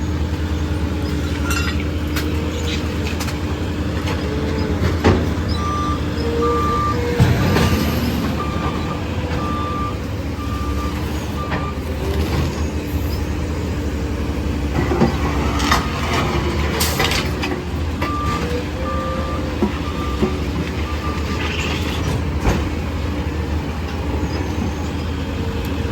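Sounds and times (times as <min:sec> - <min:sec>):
garbage truck engine running: 0:00.0 - 0:25.9
reversing alarm beeping: 0:05.4 - 0:11.9
clattering knocks from truck: 0:06.9 - 0:09.9.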